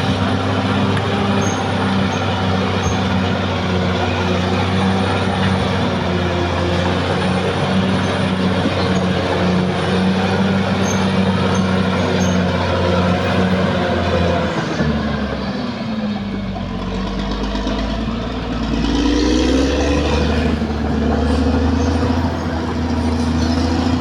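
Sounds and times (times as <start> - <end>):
bulldozer diesel engine pulsing: 0.0 - 24.0.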